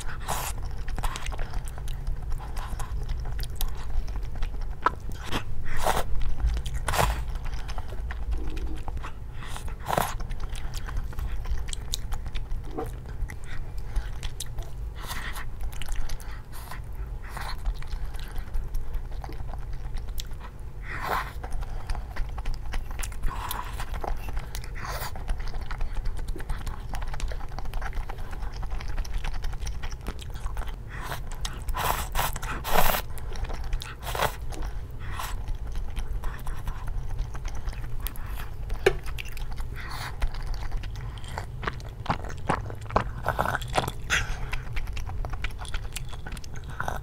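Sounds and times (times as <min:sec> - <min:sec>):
chewing and biting food: 0:00.0 - 0:47.0.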